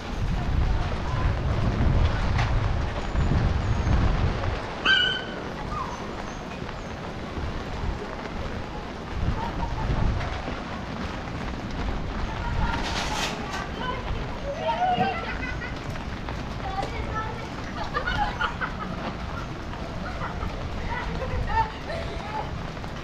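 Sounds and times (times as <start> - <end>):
low rumble: 0.0 - 4.8
rainy street ambience: 0.0 - 23.0.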